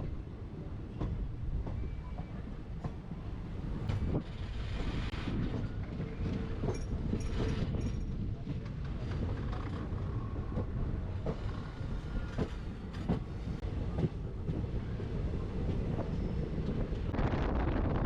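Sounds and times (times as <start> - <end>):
train rumbling on track: 0.0 - 18.0
rush of wind: 2.5 - 18.0
wheels clacking over rail joints: 3.8 - 14.6.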